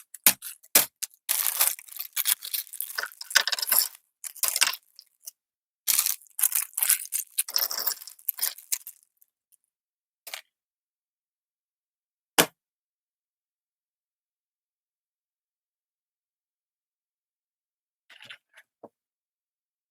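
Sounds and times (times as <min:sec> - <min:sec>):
packaging crackling and tearing: 0:00.0 - 0:05.3, 0:05.9 - 0:09.1.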